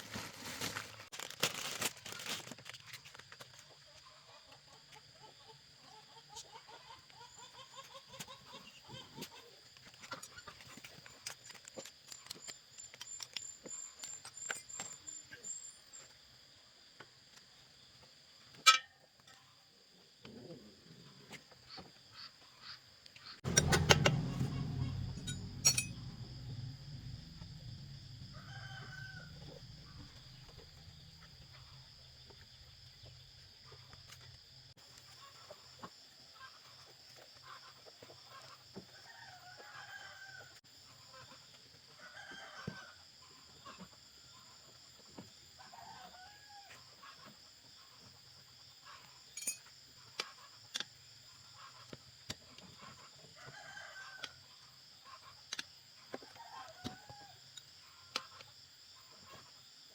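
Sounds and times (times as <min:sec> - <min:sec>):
low hum: 0:23.4 - 0:31.5.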